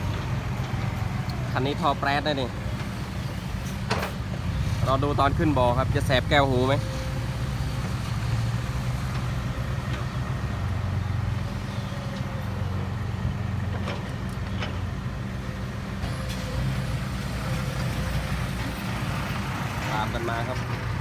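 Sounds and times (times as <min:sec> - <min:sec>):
diesel truck engine rumbling: 0:00.0 - 0:21.0.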